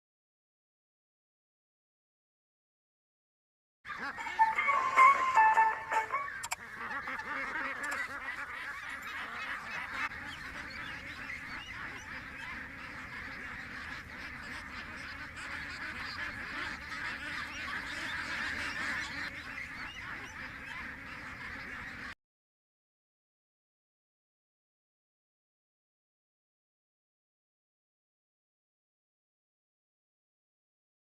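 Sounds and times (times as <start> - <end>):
waterfowl honks and quacks: 3.9 - 22.2.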